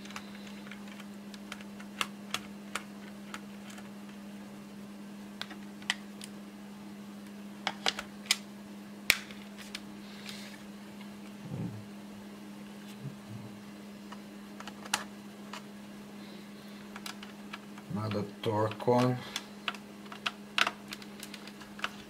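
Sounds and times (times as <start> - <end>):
low hum: 8.3 - 18.4.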